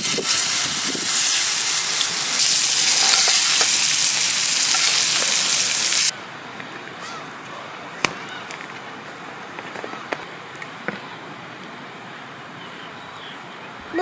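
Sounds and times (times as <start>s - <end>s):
steak sizzling over campfire: 0.0s - 6.1s.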